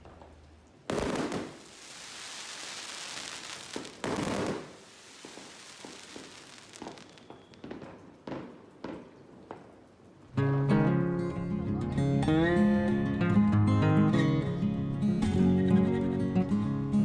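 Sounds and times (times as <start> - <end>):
high crackling hiss: 0.8 - 9.0
loud firework bangs: 0.9 - 9.1
small firework pops: 0.9 - 9.7.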